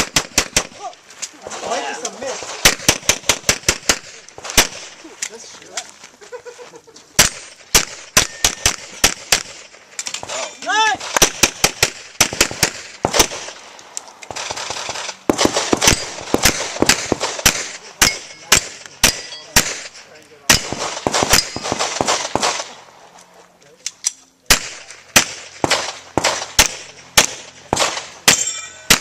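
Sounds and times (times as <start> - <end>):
pistol shots: 0.0 - 0.8, 2.3 - 5.0, 7.2 - 10.4, 11.0 - 13.7, 14.3 - 22.9, 24.5 - 29.0.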